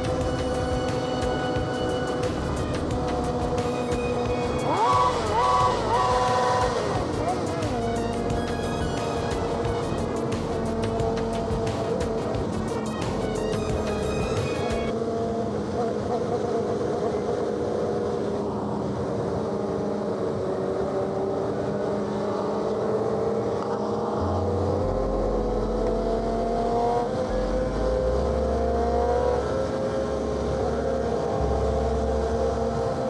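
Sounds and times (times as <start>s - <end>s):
motorcycle engine cruising: 0.0s - 14.9s.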